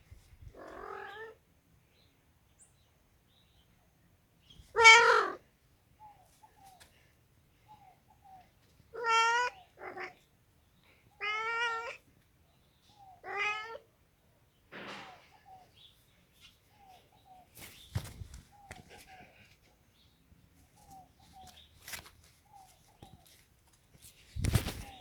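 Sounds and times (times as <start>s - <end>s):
cat meowing: 0.5s - 1.4s, 4.7s - 5.4s, 9.0s - 10.2s, 11.2s - 12.0s, 13.2s - 13.9s
thump: 14.7s - 15.3s.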